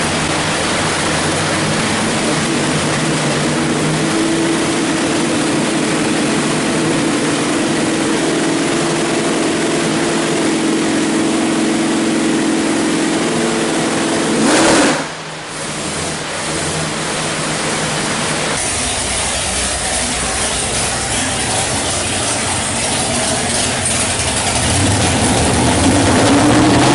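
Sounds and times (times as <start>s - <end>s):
engine running and revving: 0.0s - 26.9s.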